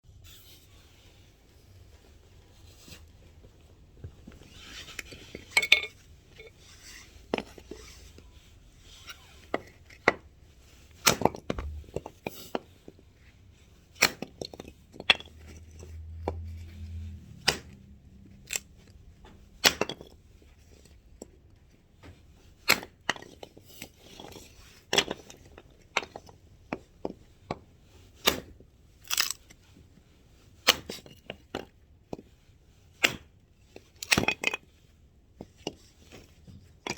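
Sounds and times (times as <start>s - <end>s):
axe chopping wood: 33.0s - 33.3s.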